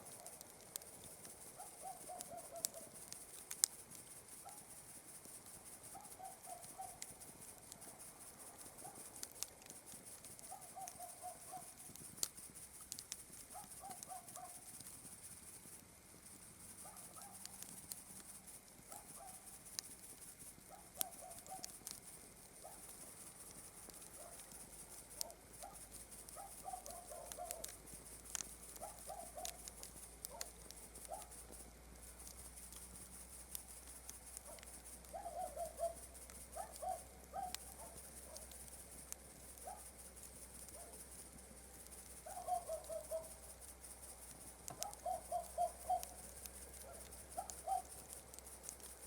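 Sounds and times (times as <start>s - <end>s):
campfire crackling and popping: 0.0s - 49.0s
crickets chirring: 0.0s - 49.0s
night animal trilled call: 35.2s - 36.0s, 42.3s - 43.3s, 44.8s - 48.0s.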